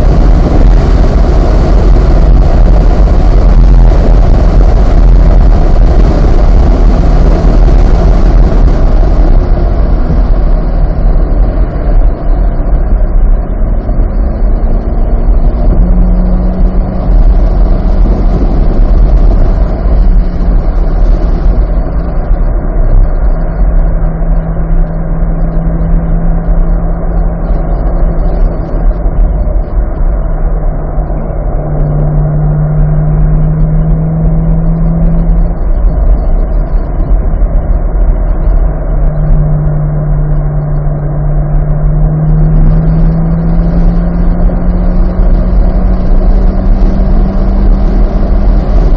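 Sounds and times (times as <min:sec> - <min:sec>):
car engine running: 0:00.0 - 0:48.9
road and wind noise: 0:00.0 - 0:48.9.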